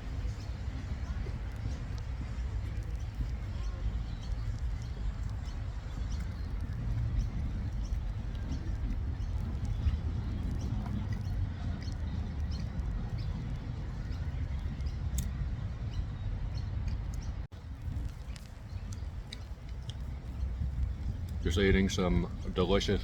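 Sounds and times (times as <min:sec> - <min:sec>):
faint high chirps and ticks: 0:00.0 - 0:16.0
steady low rumble: 0:00.0 - 0:23.0.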